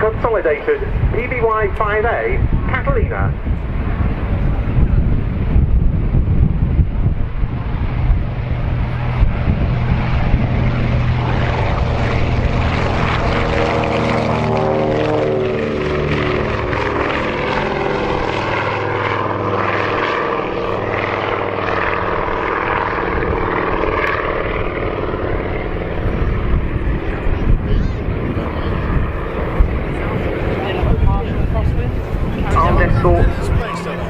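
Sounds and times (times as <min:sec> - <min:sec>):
aircraft propeller drone: 0:00.0 - 0:34.0.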